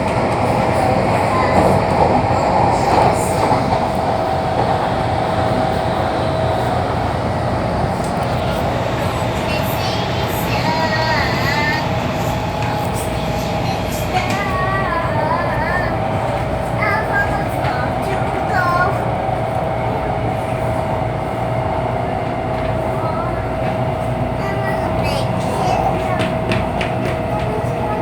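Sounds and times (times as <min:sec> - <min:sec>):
constant whine: 0:00.0 - 0:21.6
metro train rumbling on rails: 0:00.0 - 0:28.0.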